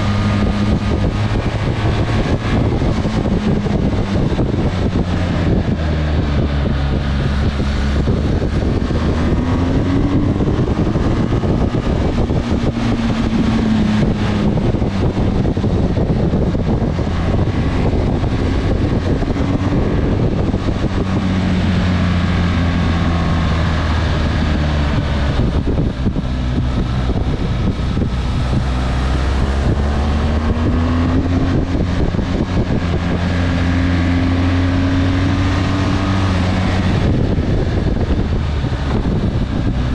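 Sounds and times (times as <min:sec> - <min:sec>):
motorcycle engine revving: 0:00.0 - 0:39.9
road noise rushing: 0:00.0 - 0:39.9.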